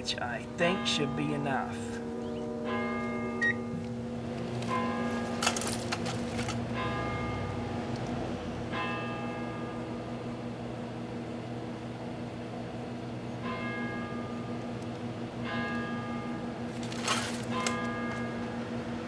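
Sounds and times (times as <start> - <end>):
ringing bell-like tones: 0.0 - 4.1
microwave oven humming: 2.2 - 19.0.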